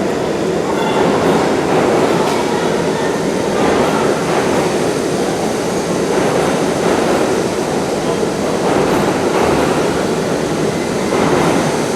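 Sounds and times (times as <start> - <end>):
subway train wheels rumbling: 0.0 - 11.9.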